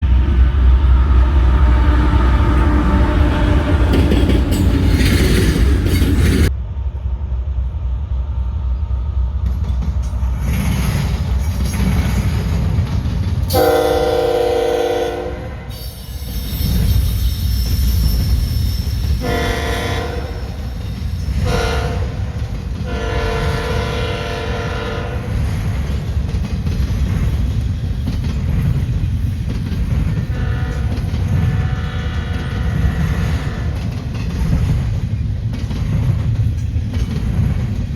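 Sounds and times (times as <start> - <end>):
train rumbling: 0.0 - 37.9
locomotive air horn: 13.5 - 16.0, 19.2 - 20.7, 21.3 - 25.5, 30.3 - 33.9.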